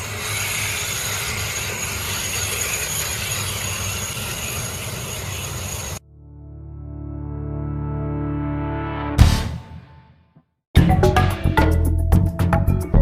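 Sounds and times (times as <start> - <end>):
machine running with high whine: 0.0 - 6.0
slow music: 6.0 - 13.0.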